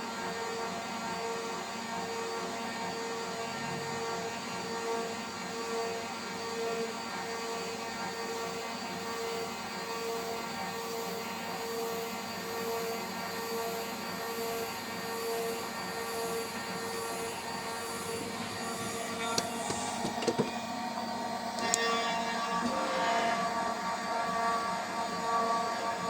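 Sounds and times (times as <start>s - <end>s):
router spindle whining while cutting metal: 15.3s - 25.6s.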